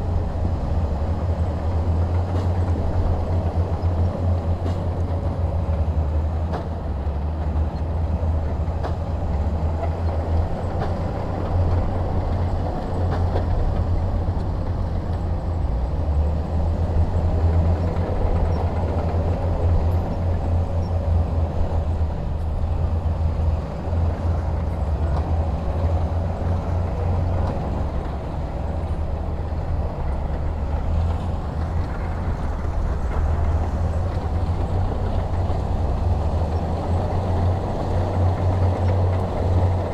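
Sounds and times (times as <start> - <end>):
heavy diesel engine rumbling: 0.0 - 39.9.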